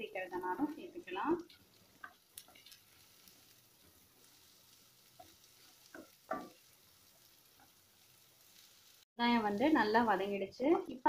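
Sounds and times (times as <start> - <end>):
onions sizzling in oil: 0.0 - 11.0
spatula scraping a pan: 1.5 - 9.0.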